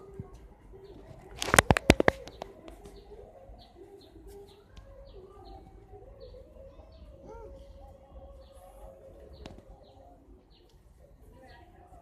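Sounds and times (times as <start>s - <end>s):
low wavering bird calls: 1.8s - 10.7s.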